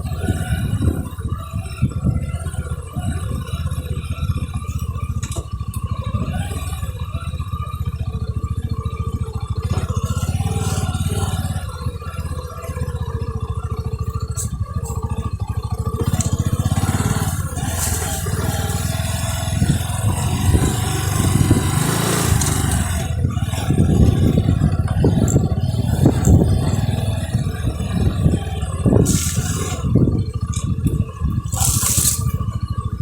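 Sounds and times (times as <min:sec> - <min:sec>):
motorcycle engine running: 0:00.0 - 0:33.0
rattling and scraping: 0:09.7 - 0:11.6, 0:16.0 - 0:32.6.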